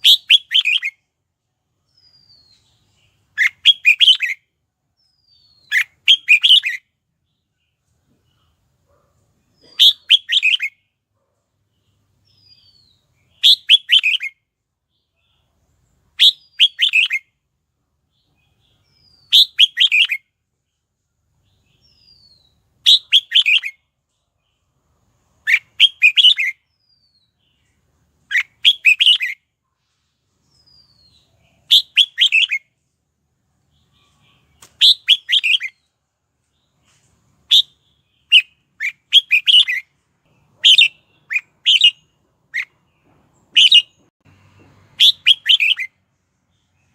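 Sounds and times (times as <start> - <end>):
bird chattering song: 0.0 - 1.1, 1.9 - 4.4, 5.0 - 8.6, 9.4 - 10.8, 11.7 - 15.6, 16.2 - 17.3, 18.2 - 20.3, 21.4 - 24.8, 25.4 - 29.4, 30.5 - 32.6, 33.7 - 35.9, 36.5 - 45.9.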